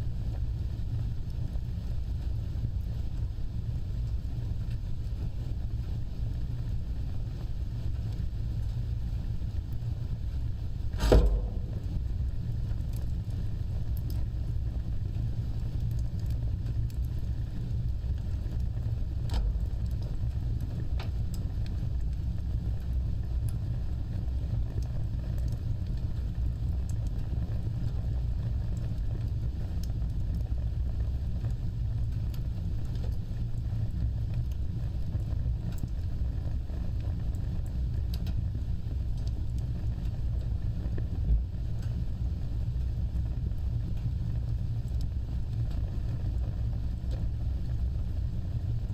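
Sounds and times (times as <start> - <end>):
fire crackling and snapping: 0.0 - 48.9
wood fire rumbling: 0.0 - 48.9
loud fire pop: 10.9 - 13.1, 19.3 - 20.2.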